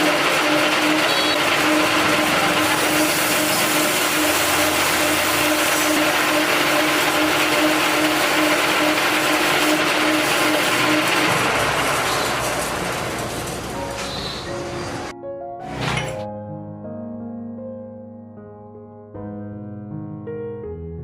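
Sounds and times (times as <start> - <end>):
motor-driven machine humming: 0.0 - 15.1.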